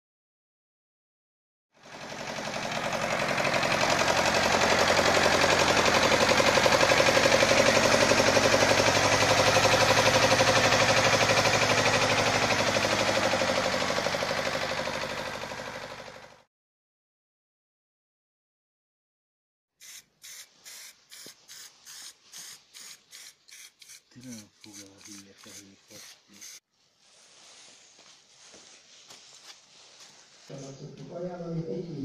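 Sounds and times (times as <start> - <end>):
tractor engine running: 1.8 - 16.4.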